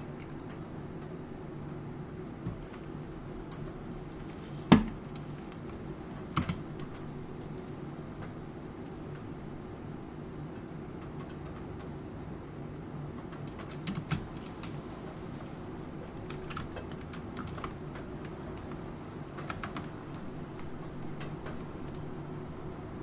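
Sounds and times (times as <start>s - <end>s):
keyboard typing: 4.8s - 7.1s, 12.8s - 14.8s, 16.0s - 22.1s.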